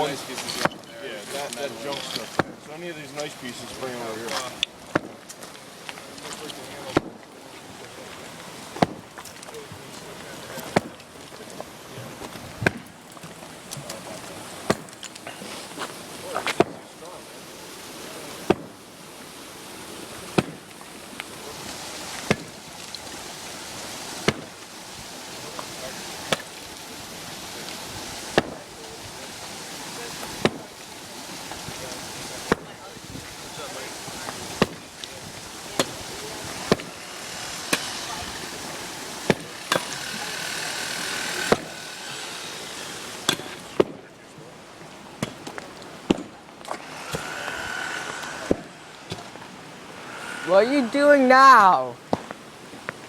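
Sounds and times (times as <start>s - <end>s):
steady hiss: 0.0s - 53.0s
hard knocks on masonry: 8.8s - 9.1s, 36.7s - 37.0s, 39.3s - 39.9s.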